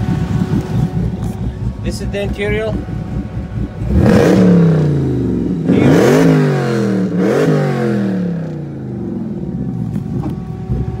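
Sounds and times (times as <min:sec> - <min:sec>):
car engine revving and idling: 0:00.0 - 0:11.0.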